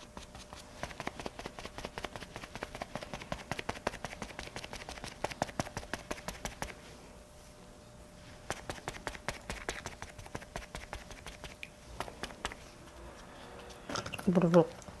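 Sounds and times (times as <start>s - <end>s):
makeup sponge patting face: 0.0s - 6.9s, 8.3s - 13.3s.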